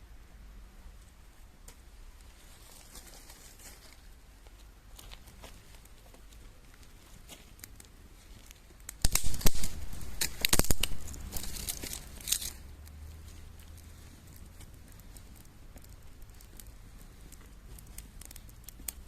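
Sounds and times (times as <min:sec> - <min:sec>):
packaging tearing and crinkling: 0:09.0 - 0:12.6.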